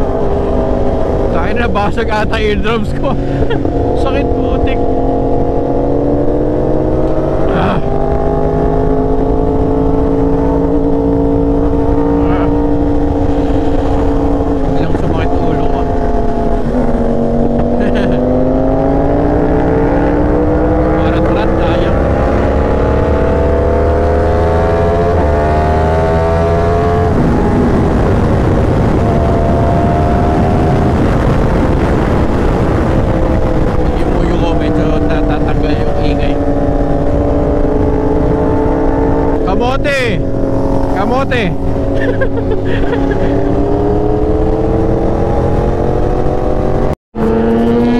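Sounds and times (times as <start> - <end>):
constant rushing noise: 0.0 - 47.9
motorcycle engine revving: 0.0 - 47.9
motorcycle engine running: 26.5 - 47.9.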